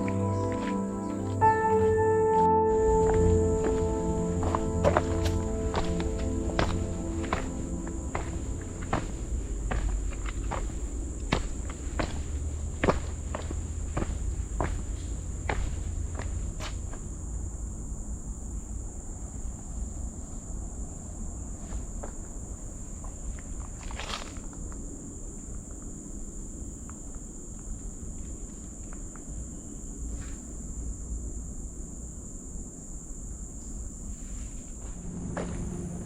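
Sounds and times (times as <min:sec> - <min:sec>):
footsteps on a trail: 0:00.0 - 0:01.4, 0:03.0 - 0:17.2, 0:23.0 - 0:24.6
low rumble: 0:00.0 - 0:13.1, 0:34.9 - 0:36.0
insects droning: 0:00.0 - 0:36.0.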